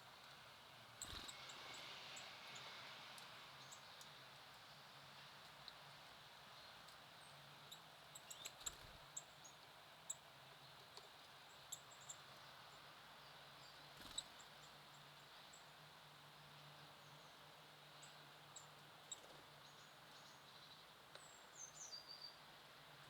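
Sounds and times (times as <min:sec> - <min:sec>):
songbird call notes: 0:06.6 - 0:10.3, 0:18.0 - 0:22.5.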